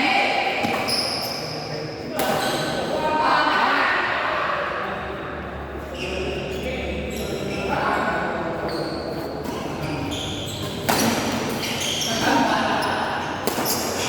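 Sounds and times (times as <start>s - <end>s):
shoes squeaking on floor: 0.6s - 1.8s, 8.6s - 14.0s
racket striking shuttlecock: 10.8s - 11.6s, 13.4s - 13.9s.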